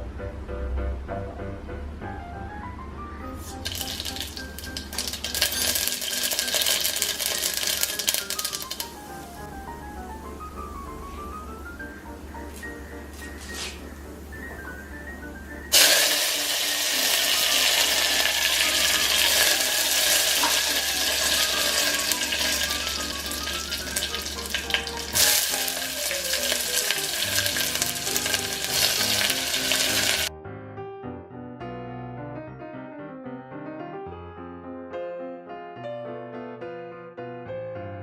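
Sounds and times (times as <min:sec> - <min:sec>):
hot oil sizzling in a pan: 0:03.4 - 0:09.5, 0:15.7 - 0:30.3.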